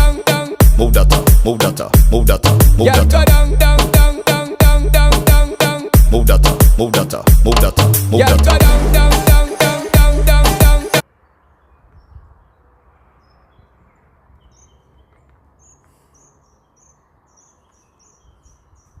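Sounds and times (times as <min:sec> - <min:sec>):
dancehall music: 0:00.0 - 0:11.0
high bird or insect chirps: 0:14.4 - 0:19.0.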